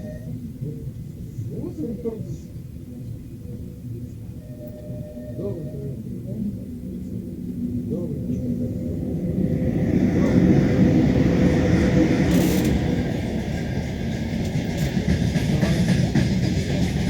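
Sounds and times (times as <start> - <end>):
train wheels clattering on rails: 10.0 - 17.0.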